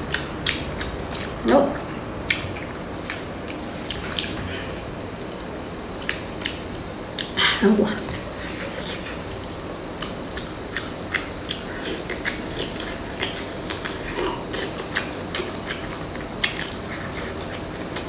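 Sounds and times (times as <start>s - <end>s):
person chewing: 0.1s - 1.4s, 2.2s - 7.4s, 8.0s - 18.0s.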